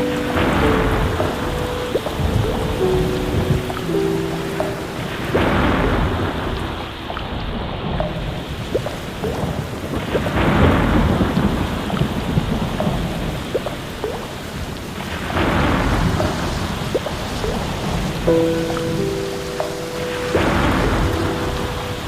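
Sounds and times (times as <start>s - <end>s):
steady rain: 0.0s - 22.0s
thunder rolling: 0.4s - 13.7s.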